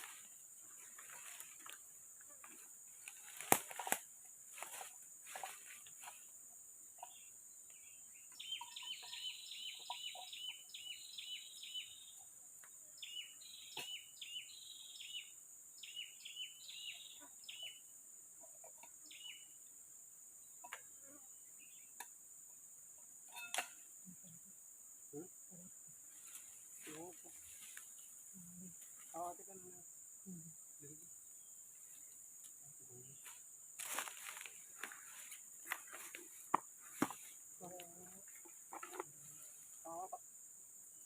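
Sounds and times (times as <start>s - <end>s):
high insect drone: 0.0s - 41.0s
bird chirping: 7.0s - 19.6s.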